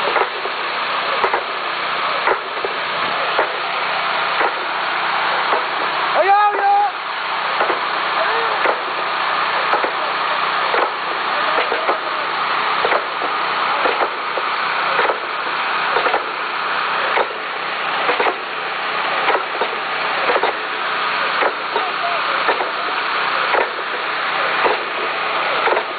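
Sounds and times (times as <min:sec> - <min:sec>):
regular mechanical knock: 0:00.0 - 0:00.6, 0:01.2 - 0:01.6, 0:02.2 - 0:03.6, 0:04.4 - 0:04.6, 0:07.6 - 0:07.8, 0:09.7 - 0:10.0, 0:12.8 - 0:15.3, 0:16.0 - 0:16.3, 0:17.1 - 0:17.4, 0:18.1 - 0:18.5, 0:19.2 - 0:20.6, 0:21.4 - 0:22.8, 0:23.5 - 0:24.0, 0:24.6 - 0:25.9
steady machine noise: 0:00.0 - 0:25.9
faint voices: 0:00.1 - 0:25.9.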